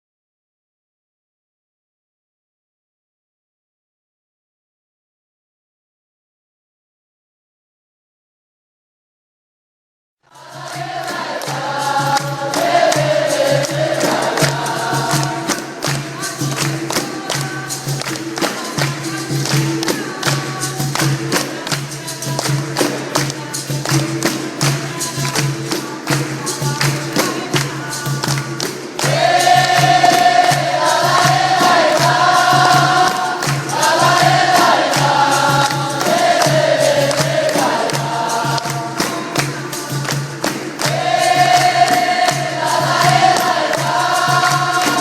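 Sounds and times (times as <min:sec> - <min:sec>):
hand percussion beat: 0:10.3 - 0:45.0
person singing: 0:10.3 - 0:45.0.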